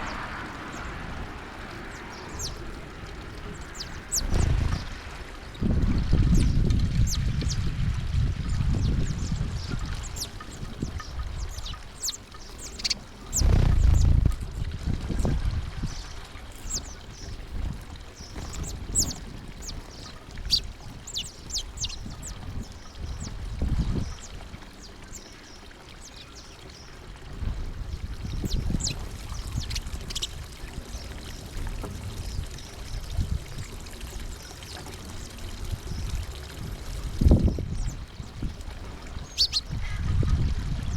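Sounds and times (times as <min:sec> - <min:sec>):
small birds chirping: 0:00.0 - 0:05.7, 0:06.3 - 0:07.7, 0:08.4 - 0:14.5, 0:15.1 - 0:40.0
gusty low rumble: 0:00.0 - 0:24.3, 0:35.1 - 0:40.9.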